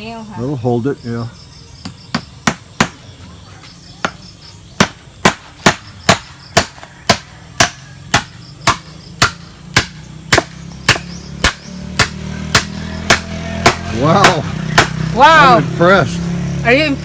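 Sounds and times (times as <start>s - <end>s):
hammer driving a nail: 4.8s - 15.0s.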